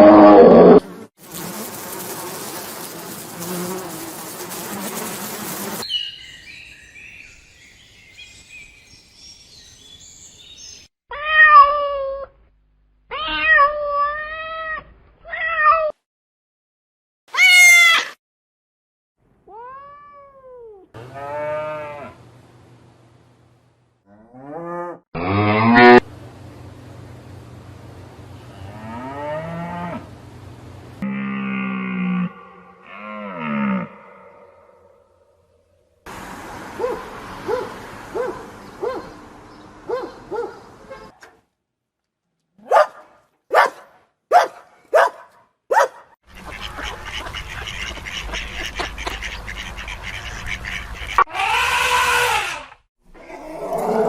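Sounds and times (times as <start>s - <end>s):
cat meows with falling pitch: 11.1s - 12.3s, 13.1s - 16.0s.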